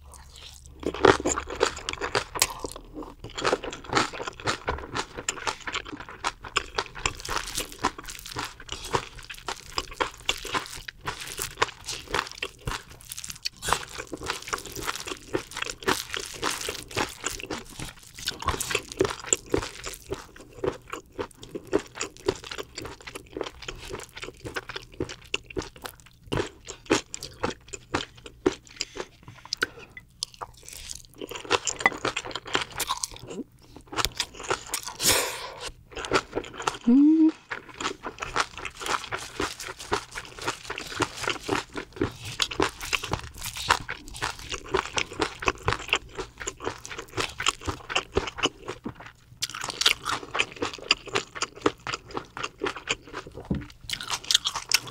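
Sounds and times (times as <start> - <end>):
wet chewing with crunches: 0.0 - 35.1, 35.9 - 54.9.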